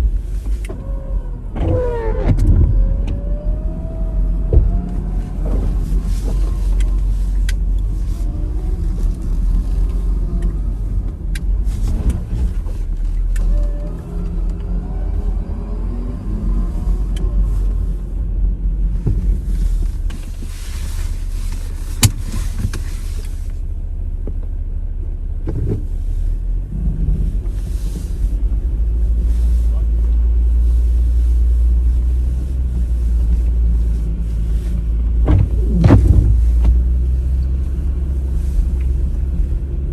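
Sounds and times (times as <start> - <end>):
car engine revving: 26.5 - 39.9.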